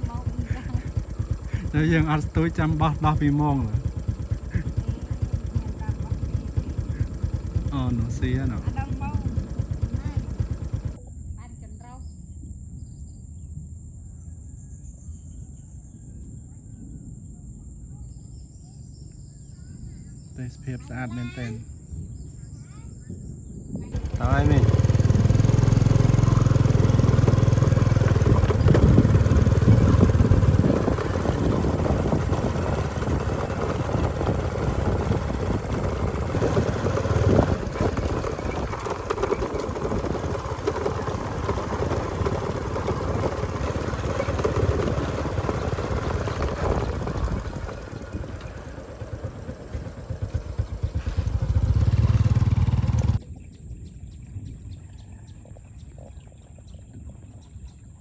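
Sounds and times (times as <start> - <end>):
motorbike engine running: 0.0 - 11.1, 20.6 - 53.5.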